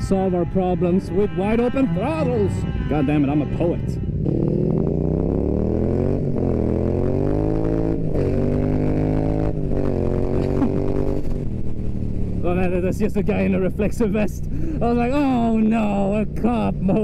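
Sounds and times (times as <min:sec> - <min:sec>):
motorcycle accelerating hard: 0:04.0 - 0:13.6.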